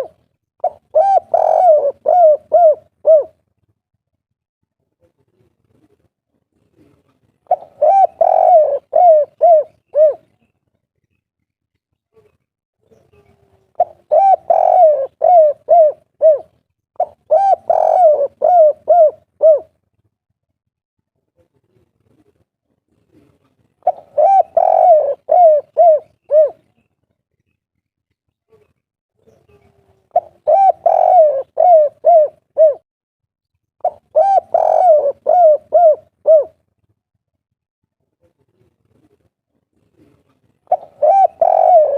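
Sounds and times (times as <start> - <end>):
dove cooing: 0.0 - 3.4, 6.8 - 10.4, 13.3 - 19.8, 23.2 - 26.8, 29.4 - 32.8, 33.8 - 36.6, 40.0 - 41.9.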